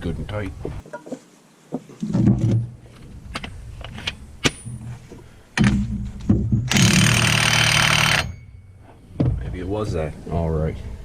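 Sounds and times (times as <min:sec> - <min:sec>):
impact wrench hammering: 0:06.6 - 0:08.6.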